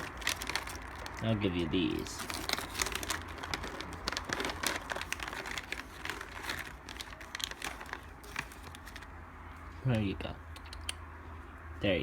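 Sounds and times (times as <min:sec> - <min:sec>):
package crinkling and rustling: 0:00.0 - 0:09.2.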